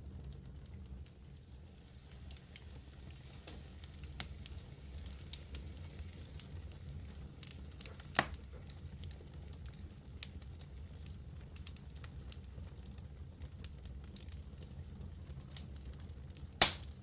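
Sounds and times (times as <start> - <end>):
wood fire crackling: 0.0 - 17.0
loud fire pop: 16.6 - 17.0.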